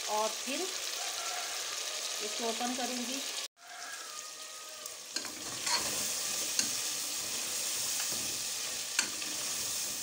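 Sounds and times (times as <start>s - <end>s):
meat sizzling in a pot: 0.0s - 10.0s
metal ladle stirring: 5.2s - 10.0s.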